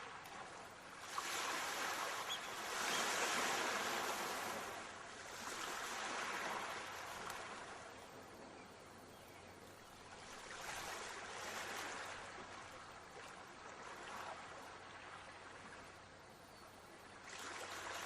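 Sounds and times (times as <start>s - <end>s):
sea waves washing onto shore: 0.0s - 8.0s.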